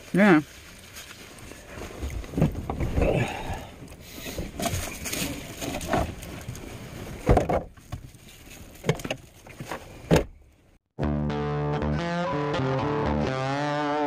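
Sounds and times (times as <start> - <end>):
handling knocks and rustling: 4.1 - 10.5
distorted electric guitar music: 11.0 - 14.0.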